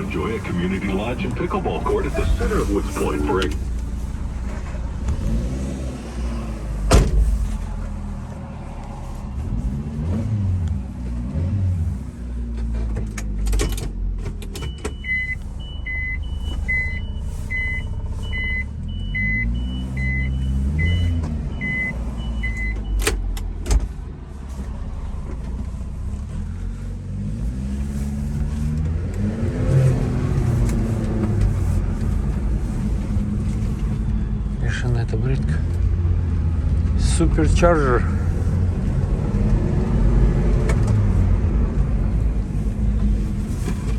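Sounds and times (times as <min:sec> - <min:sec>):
truck engine running: 0:00.0 - 0:11.2, 0:14.0 - 0:43.9
electronic beeping: 0:14.7 - 0:23.0.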